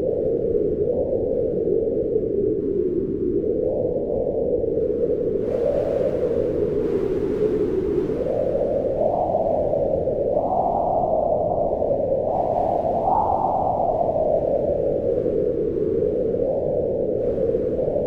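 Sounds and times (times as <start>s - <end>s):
wind blowing in gusts: 0.0s - 18.0s.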